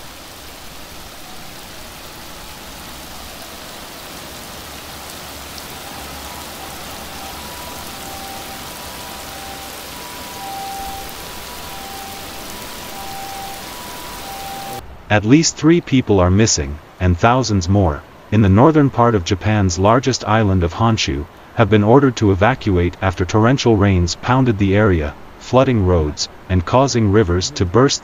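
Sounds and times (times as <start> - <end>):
heavy rain on water: 0.0 - 14.9
faint two-tone signal: 5.7 - 14.8.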